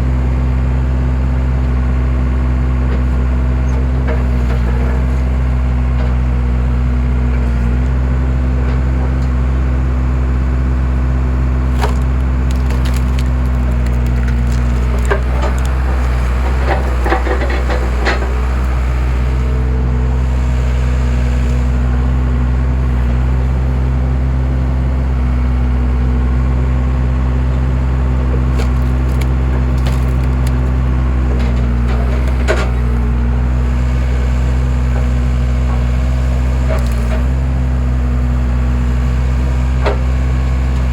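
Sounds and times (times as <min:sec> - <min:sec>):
skid steer engine running: 0:00.0 - 0:40.9
wood cracking and splintering: 0:11.0 - 0:19.2, 0:27.5 - 0:33.1, 0:34.8 - 0:37.7.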